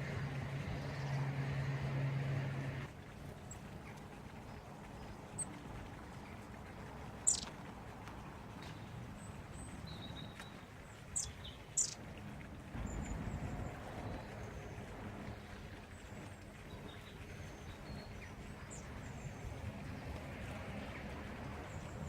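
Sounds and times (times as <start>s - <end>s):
low background rumble: 0.0s - 22.0s
small birds chirping: 3.5s - 7.6s, 8.7s - 12.0s.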